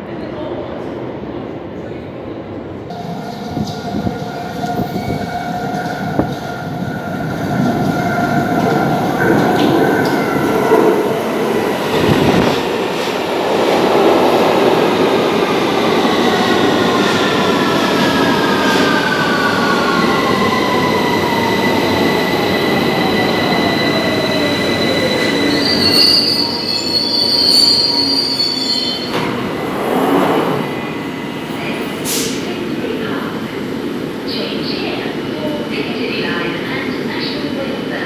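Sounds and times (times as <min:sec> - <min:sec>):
wheel and brake squeal: 0:23.6 - 0:29.3.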